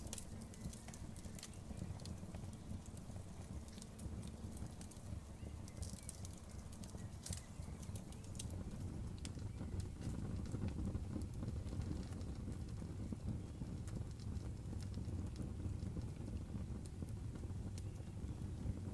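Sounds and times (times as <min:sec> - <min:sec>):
crackles and pops of burning wood: 0:00.0 - 0:18.9
fire low rumble: 0:00.0 - 0:18.9.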